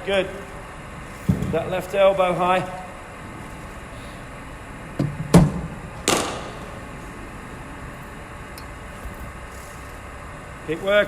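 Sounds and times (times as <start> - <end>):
dull cricket ball hit: 5.3 - 6.6
cricket ball sharp crack: 6.0 - 6.6.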